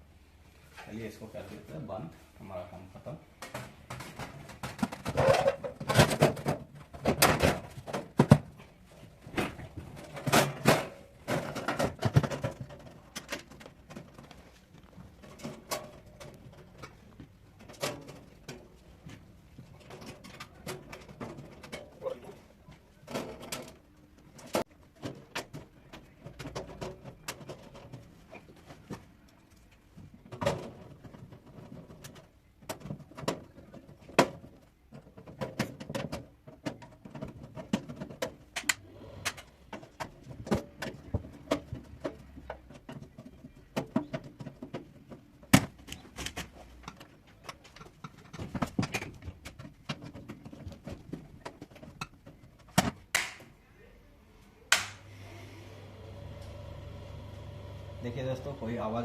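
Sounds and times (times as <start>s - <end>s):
clicks taps and knocks of handling parts: 23.1s - 53.6s.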